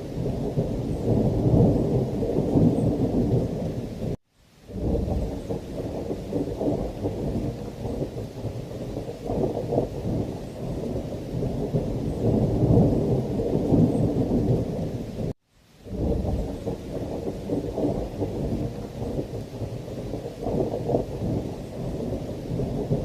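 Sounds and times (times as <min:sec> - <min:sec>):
heavy rain: 0:00.0 - 0:23.0
rolling thunder: 0:00.0 - 0:23.0.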